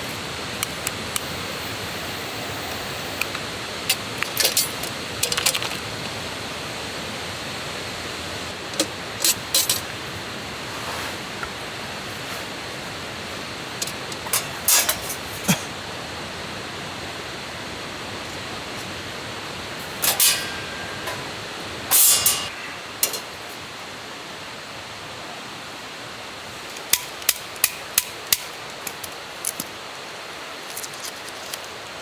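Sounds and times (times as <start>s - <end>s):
steady hiss: 0.0s - 32.0s
rustling scrapes: 10.6s - 11.4s, 12.1s - 12.6s
hammering strikes: 20.0s - 23.4s.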